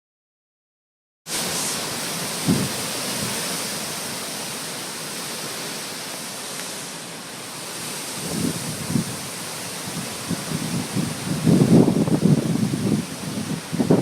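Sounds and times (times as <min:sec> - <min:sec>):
storm wind blowing: 0:01.3 - 0:05.8, 0:06.4 - 0:14.0
wind buffeting microphone: 0:02.3 - 0:03.6, 0:08.1 - 0:14.0.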